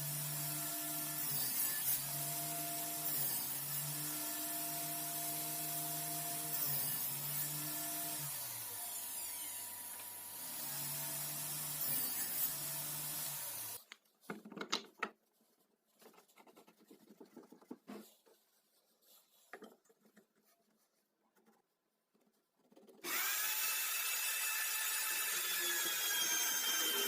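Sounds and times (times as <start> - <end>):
power tool running: 7.4 - 13.8, 23.0 - 27.0
wood and tools being handled: 13.2 - 23.4.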